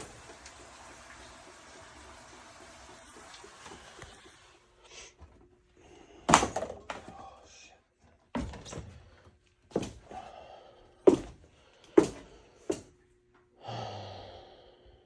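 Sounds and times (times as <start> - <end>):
heavy thuds with rattle: 8.4 - 9.0.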